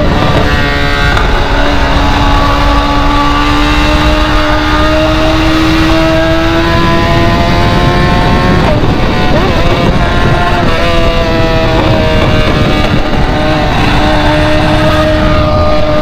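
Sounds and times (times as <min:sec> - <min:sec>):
car engine through open exhaust: 0:00.0 - 0:16.0.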